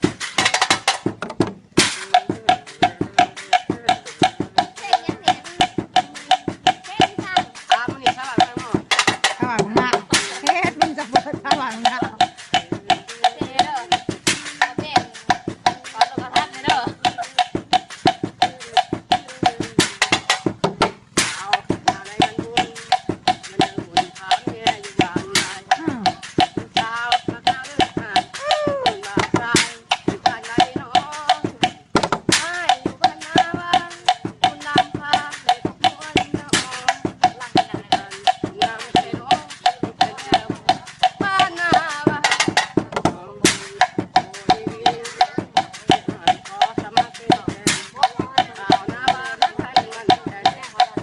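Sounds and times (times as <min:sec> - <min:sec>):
percussion tapping rhythm: 0:00.0 - 0:51.0
person's voice: 0:09.4 - 0:12.2.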